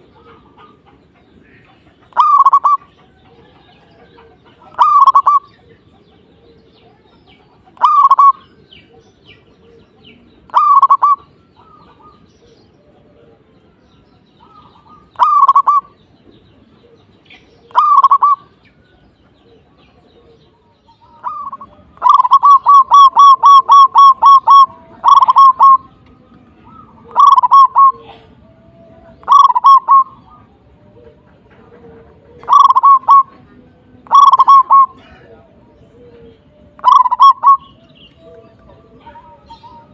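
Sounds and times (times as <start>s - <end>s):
dove cooing: 0.0s - 13.8s, 14.4s - 39.9s.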